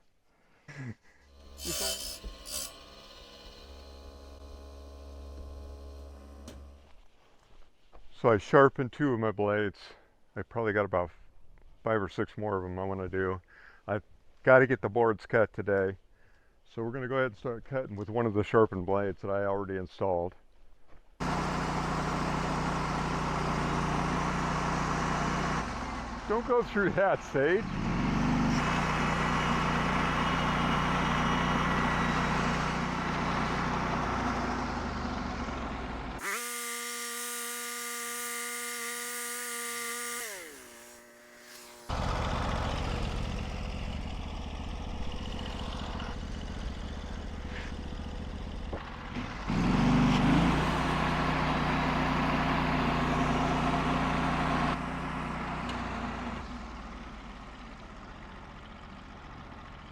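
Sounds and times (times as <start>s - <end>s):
sawmill gasoline engine running: 1.2s - 6.9s, 21.2s - 59.9s
high saw whine: 1.3s - 6.9s, 36.2s - 47.4s.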